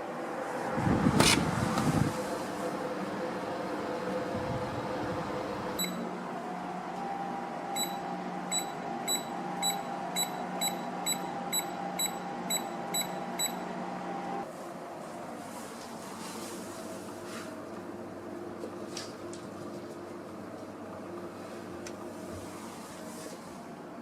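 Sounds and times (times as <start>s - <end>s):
fan humming: 0.0s - 24.0s
short high beeps: 7.8s - 13.6s.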